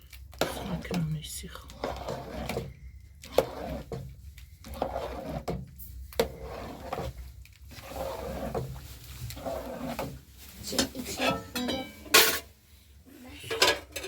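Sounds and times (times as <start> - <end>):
rustling: 6.1 - 12.8
household clatter: 9.3 - 12.5, 13.4 - 14.0.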